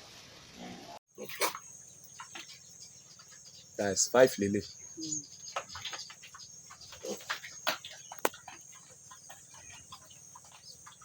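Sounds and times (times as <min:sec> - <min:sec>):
pigs squeaking and grunting: 0:00.6 - 0:03.4, 0:05.0 - 0:11.0.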